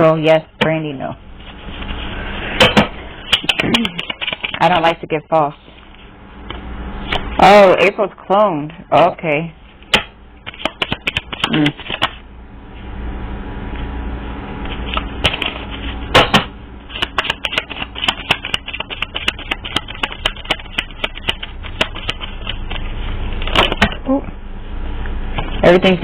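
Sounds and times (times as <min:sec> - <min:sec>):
cards being shuffled: 0:03.3 - 0:05.0, 0:10.4 - 0:12.2, 0:16.9 - 0:22.9.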